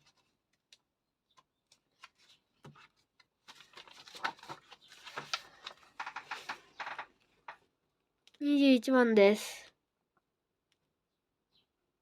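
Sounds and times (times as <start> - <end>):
paper rustling: 1.4 - 7.0
desk items scraping and tapping: 5.1 - 7.6.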